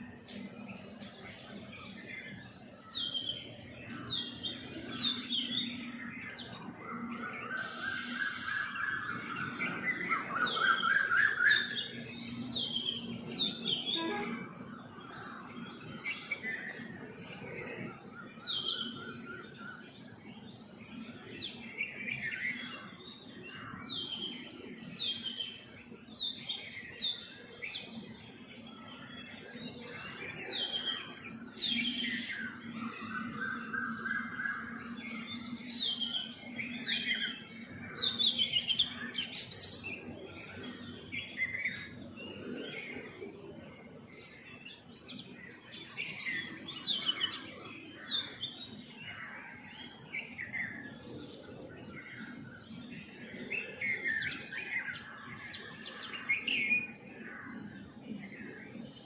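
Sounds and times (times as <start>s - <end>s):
songbirds chirping: 0.0s - 59.0s
low trilling bird phrase: 13.8s - 15.3s.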